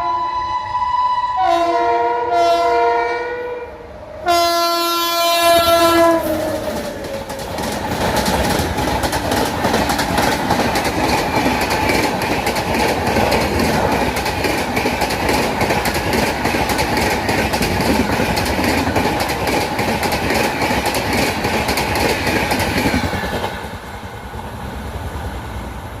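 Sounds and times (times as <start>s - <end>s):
locomotive horn: 0.0s - 6.6s
train wheels clacking over rail joints: 5.9s - 24.2s.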